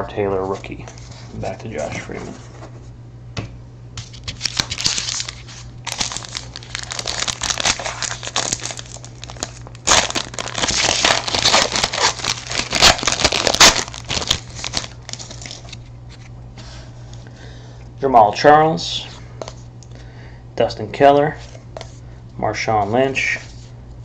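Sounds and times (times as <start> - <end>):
wrapper tearing and crinkling: 4.0 - 16.2.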